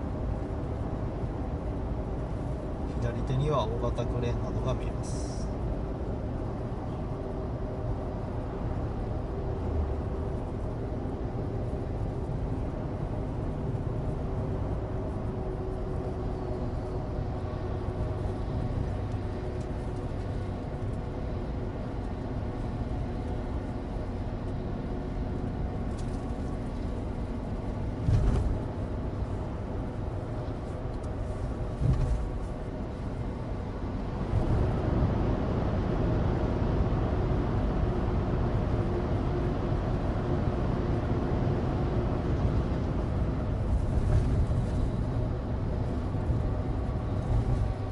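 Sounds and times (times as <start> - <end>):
road rumble from tyres: 4.2 - 47.9
thumps from the road: 28.0 - 28.6, 31.8 - 32.3.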